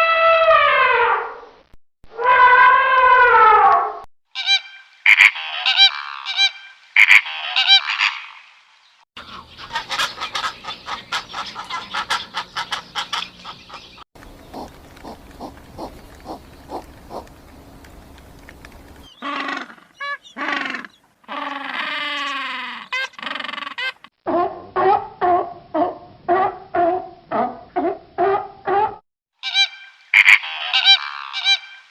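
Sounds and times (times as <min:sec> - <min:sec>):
animal grunt-like pulses: 0:14.5 - 0:17.3
animal falling pitched calls: 0:19.2 - 0:24.0.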